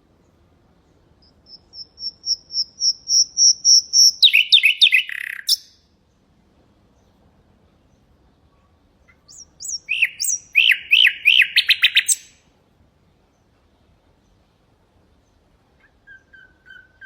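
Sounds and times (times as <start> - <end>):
nightingale singing: 0.2 - 5.9, 9.0 - 12.4, 15.2 - 17.0.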